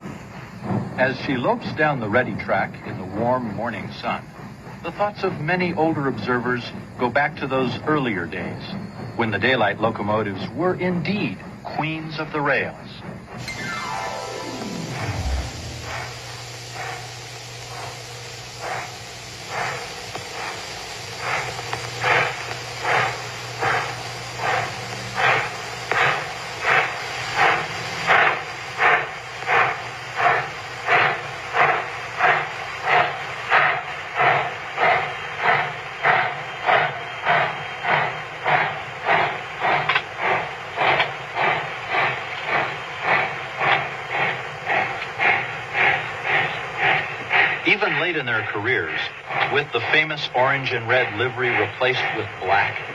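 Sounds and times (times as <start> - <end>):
steam hissing: 0.0 - 52.9
steam locomotive chuffing: 0.0 - 52.9.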